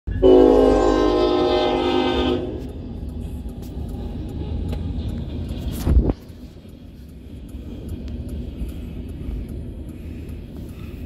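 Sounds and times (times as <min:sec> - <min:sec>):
freight train rumble: 0:00.1 - 0:11.0
faint ticking: 0:06.3 - 0:11.0.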